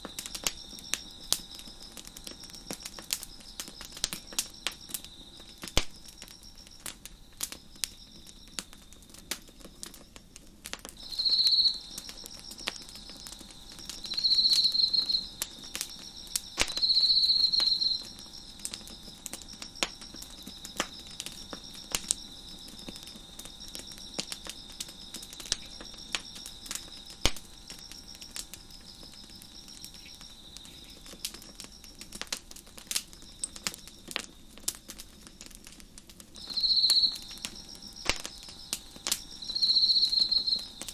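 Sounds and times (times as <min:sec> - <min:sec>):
nearby cricket trilling: 0:00.0 - 0:10.2, 0:11.0 - 0:35.2, 0:36.4 - 0:40.9
crickets chirping: 0:00.0 - 0:40.9
wood fire crackling and popping: 0:00.0 - 0:40.9.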